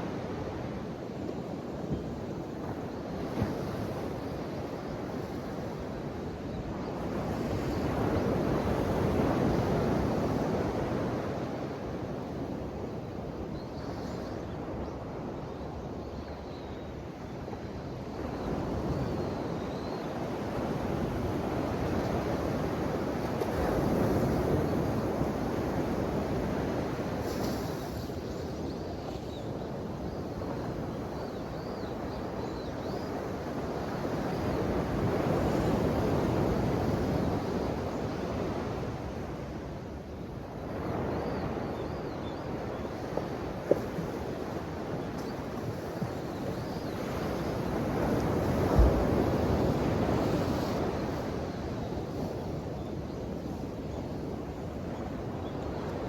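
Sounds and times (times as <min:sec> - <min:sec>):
ocean waves washing onto shore: 0:20.3 - 0:56.0.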